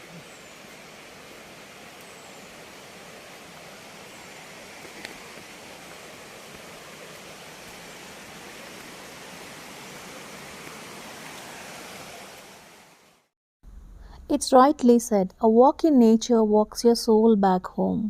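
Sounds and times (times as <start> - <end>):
distant flowing water: 0.0 - 13.3.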